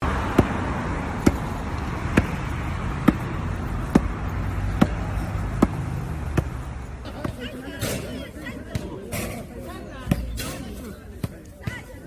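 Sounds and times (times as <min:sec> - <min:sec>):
basketball bouncing: 0:00.2 - 0:06.6.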